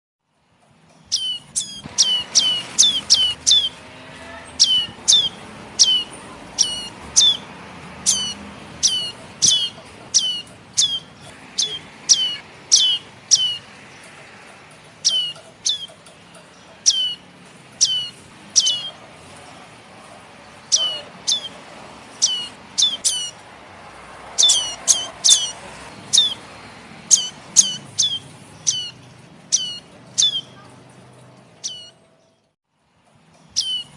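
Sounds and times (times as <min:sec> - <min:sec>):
bird chick calling: 0:01.1 - 0:03.8, 0:04.6 - 0:07.4, 0:08.0 - 0:13.7, 0:15.0 - 0:16.1, 0:17.8 - 0:19.0, 0:20.7 - 0:21.6, 0:22.2 - 0:23.4, 0:24.4 - 0:26.4, 0:27.1 - 0:30.7.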